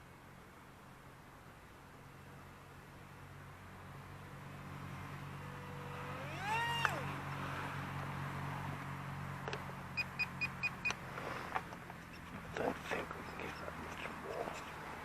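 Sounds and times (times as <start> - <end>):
model plane electric motor whine: 5.5 - 7.1.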